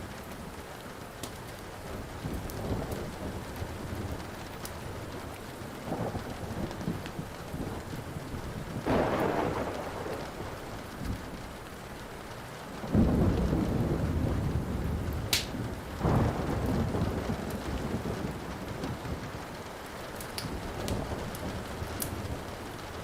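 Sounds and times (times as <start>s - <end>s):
steady rain: 0.0s - 23.0s
thunder rolling: 2.0s - 11.6s, 12.8s - 19.4s.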